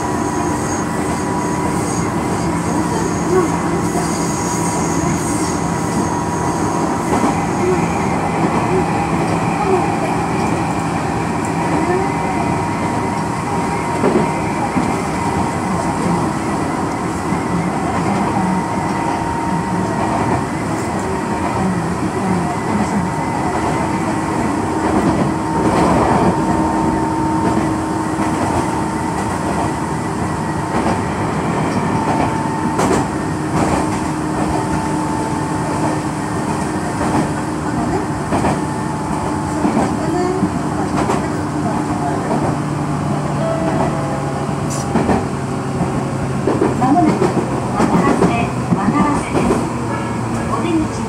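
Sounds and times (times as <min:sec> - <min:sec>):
electric train whine: 0:00.0 - 0:51.0
wheels rumbling on rail: 0:00.0 - 0:51.0.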